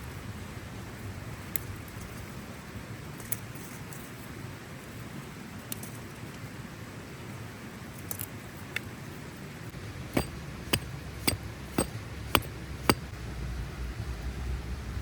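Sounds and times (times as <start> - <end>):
sharp knocks: 10.2 - 13.0.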